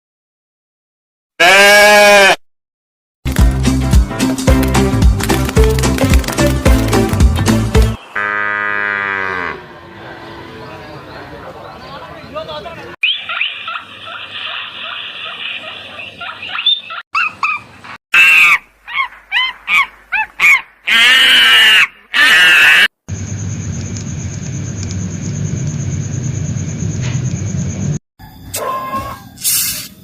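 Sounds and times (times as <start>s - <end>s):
rising and falling animal calls: 8.0s - 11.4s, 13.0s - 22.9s.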